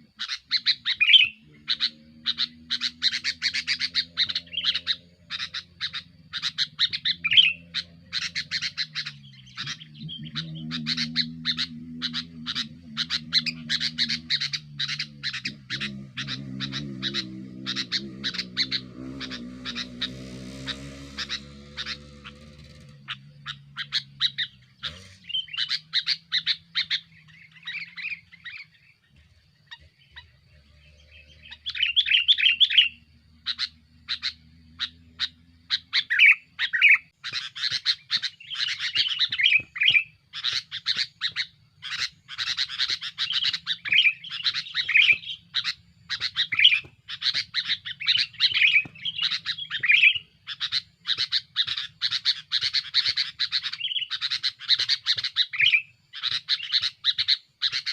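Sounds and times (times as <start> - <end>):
bulbul chirping: 0.1 - 57.9.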